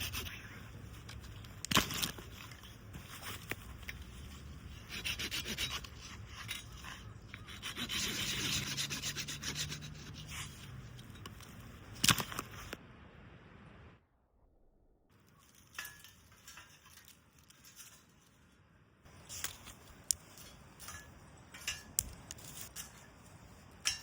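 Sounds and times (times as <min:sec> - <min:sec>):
scraping strokes on wood: 0:03.0 - 0:11.2.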